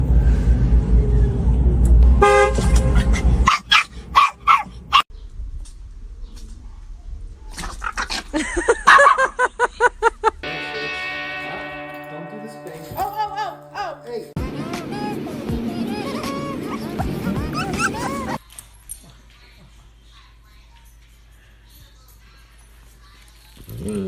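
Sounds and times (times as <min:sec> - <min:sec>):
dogs barking: 0:02.7 - 0:05.1, 0:07.6 - 0:09.4, 0:15.6 - 0:18.4.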